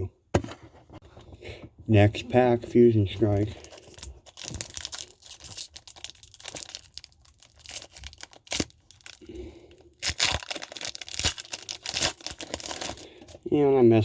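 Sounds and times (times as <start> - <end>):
foil wrapper tearing and crinkling: 3.6 - 13.2.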